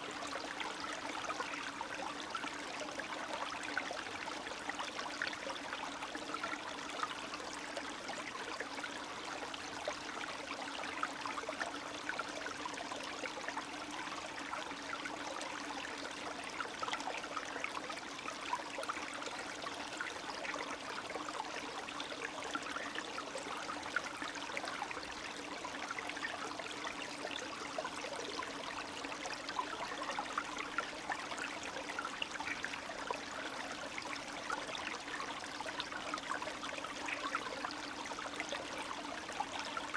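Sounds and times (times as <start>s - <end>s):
stream running and trickling: 0.0s - 39.9s.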